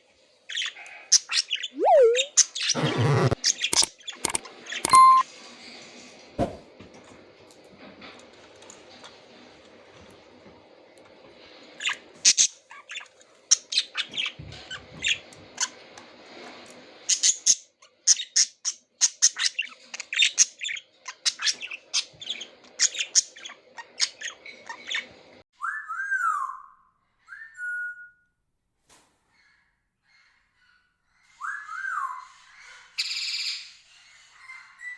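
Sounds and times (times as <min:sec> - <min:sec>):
budgerigars chirping: 0:00.6 - 0:04.4
whistled bird calls: 0:01.7 - 0:03.4.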